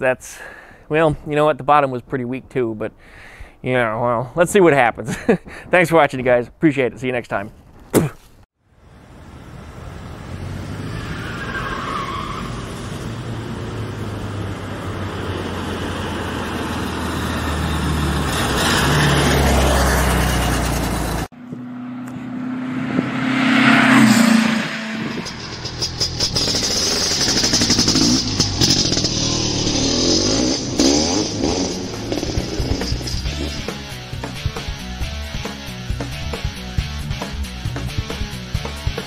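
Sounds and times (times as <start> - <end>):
car engine driving by: 8.8 - 34.8.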